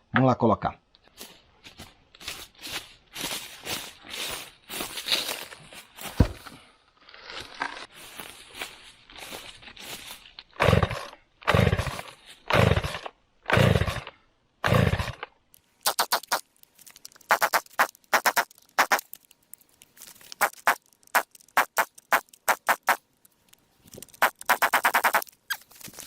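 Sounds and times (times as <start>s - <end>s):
chainsaw starter cord pulls: 10.6s - 15.3s.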